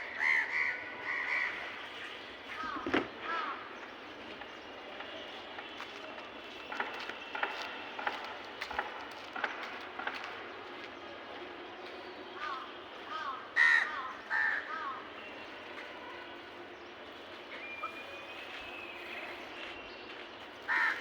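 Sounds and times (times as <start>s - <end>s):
crows cawing: 0.1s - 1.6s, 2.6s - 3.7s, 12.4s - 15.0s, 20.7s - 21.0s.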